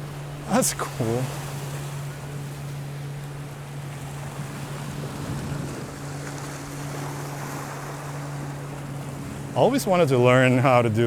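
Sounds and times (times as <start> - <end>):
surf: 0.0 - 11.0
wave runner engine drone: 0.0 - 11.0
wind on microphone: 4.8 - 6.5.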